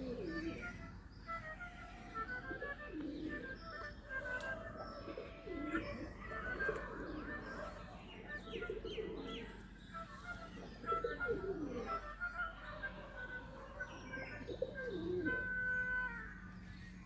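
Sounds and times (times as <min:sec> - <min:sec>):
pigeons cooing: 0:00.0 - 0:16.2
birds chirping: 0:00.0 - 0:17.0.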